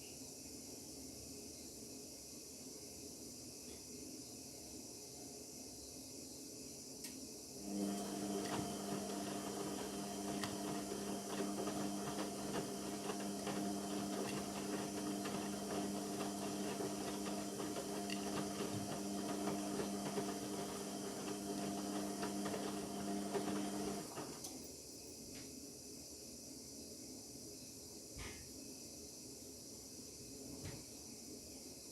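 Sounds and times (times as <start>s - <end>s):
washing machine motor hum: 7.6s - 24.5s.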